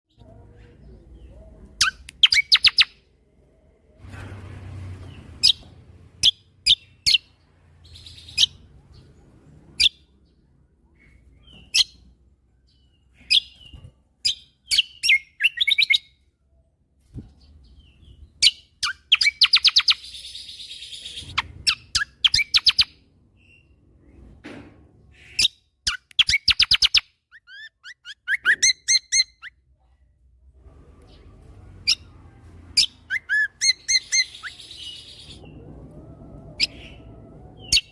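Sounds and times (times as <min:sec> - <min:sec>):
bird singing rapid chirps and trills: 0:00.1 - 0:03.0, 0:17.3 - 0:23.8.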